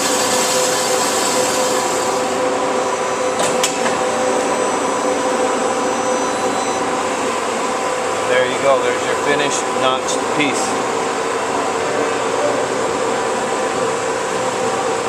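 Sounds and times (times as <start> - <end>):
band saw whining: 0.0 - 2.5.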